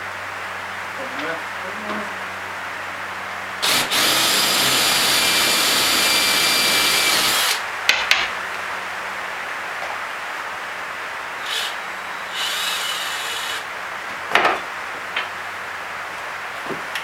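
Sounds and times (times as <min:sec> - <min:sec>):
power drill boring into wood: 0:03.6 - 0:07.6, 0:11.4 - 0:13.7.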